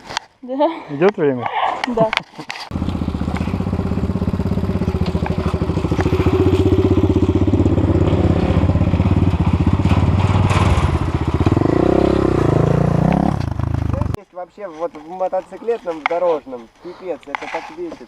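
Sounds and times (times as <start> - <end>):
motorcycle engine running: 2.7 - 14.2.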